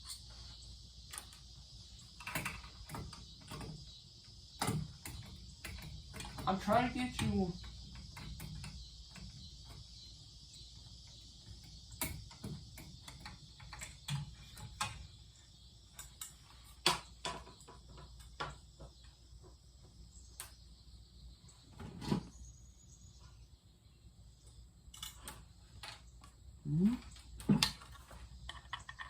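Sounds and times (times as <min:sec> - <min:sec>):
clicks and knocks handling parts: 0:11.0 - 0:15.3, 0:24.9 - 0:26.4.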